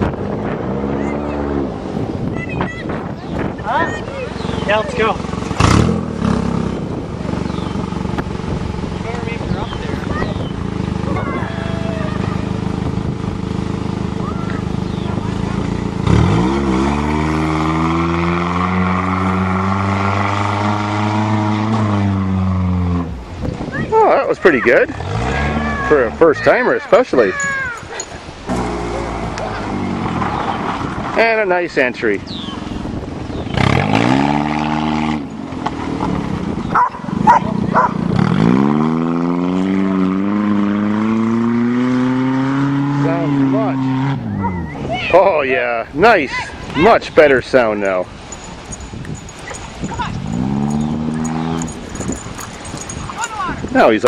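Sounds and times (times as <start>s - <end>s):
car engine revving hard: 4.4s - 9.2s, 10.3s - 23.2s, 24.9s - 26.4s, 33.4s - 44.5s, 50.2s - 52.6s
dog barking: 36.7s - 38.0s.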